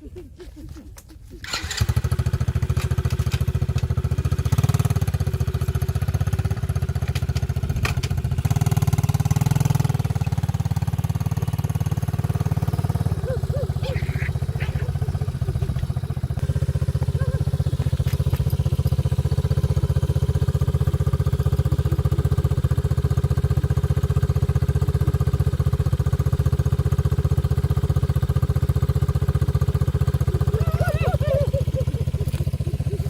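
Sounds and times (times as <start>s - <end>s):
small engine running: 1.4s - 33.0s.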